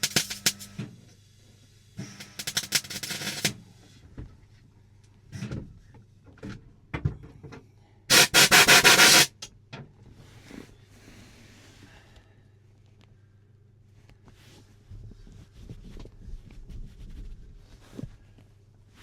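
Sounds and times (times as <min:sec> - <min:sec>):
welding crackling: 0:00.0 - 0:00.7, 0:02.4 - 0:03.5, 0:08.1 - 0:09.4.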